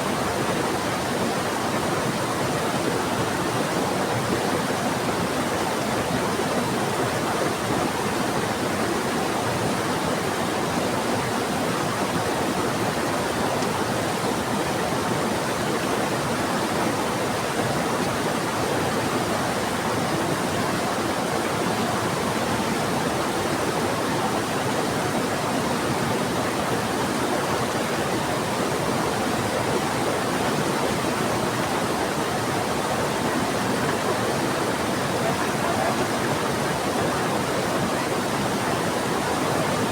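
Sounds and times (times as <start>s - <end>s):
river rushing: 0.0s - 39.9s
rain falling: 30.1s - 39.9s.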